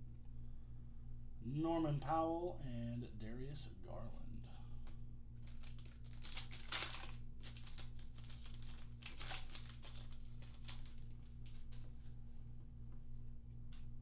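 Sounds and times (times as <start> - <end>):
wrapper crinkling and tearing: 5.4 - 11.8.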